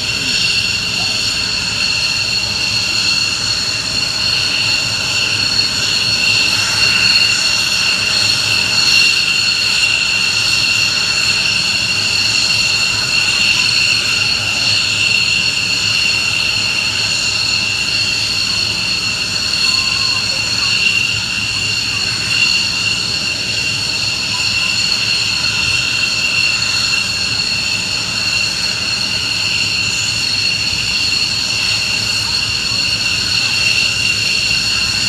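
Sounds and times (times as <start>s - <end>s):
jet engines whining: 0.0s - 35.0s.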